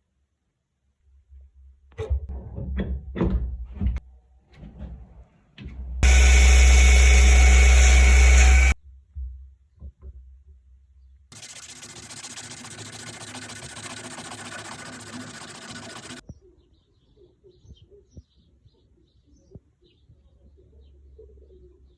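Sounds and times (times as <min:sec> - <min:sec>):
power tool buzzing: 0:06.0 - 0:08.8, 0:11.3 - 0:16.2.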